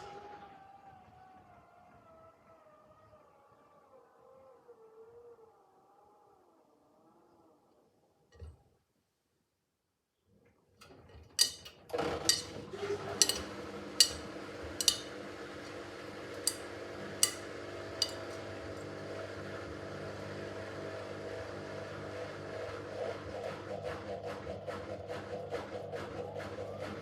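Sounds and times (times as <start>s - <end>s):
load clinking against drum: 11.4s - 12.6s, 13.2s - 15.1s, 16.4s - 16.6s, 17.2s - 17.4s, 18.0s - 18.4s
washing machine motor humming: 11.4s - 23.9s.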